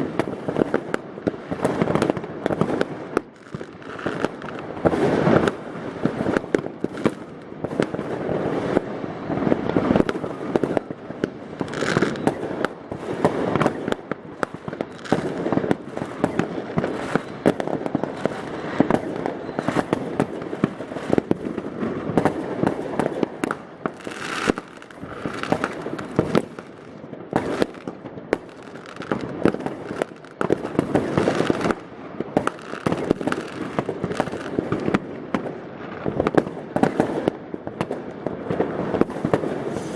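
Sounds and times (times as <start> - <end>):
fireworks bangs and bursts: 0.0 - 39.9
fireworks hissing: 23.9 - 27.9, 39.4 - 39.9.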